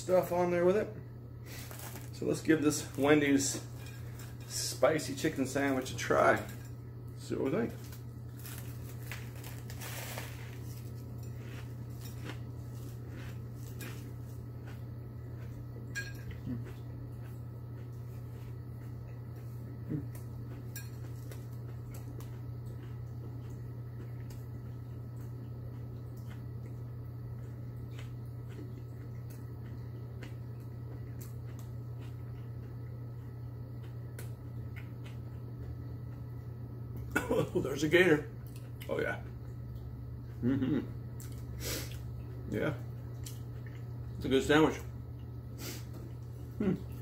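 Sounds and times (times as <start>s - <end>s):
steady low hum: 0.0s - 47.0s
crunchy sandwich chewing: 1.4s - 4.5s, 6.9s - 37.6s.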